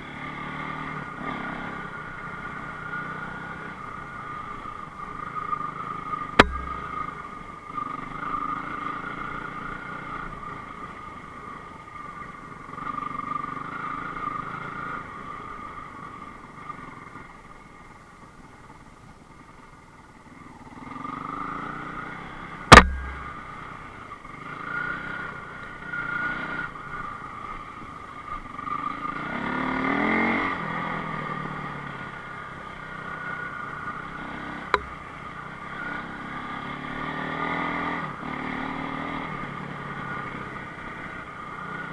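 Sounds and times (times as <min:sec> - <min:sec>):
motorcycle engine revving: 0:05.2 - 0:10.3, 0:20.8 - 0:27.3, 0:32.9 - 0:41.9
sharp knock: 0:06.4 - 0:07.0, 0:22.7 - 0:23.4, 0:34.8 - 0:35.0.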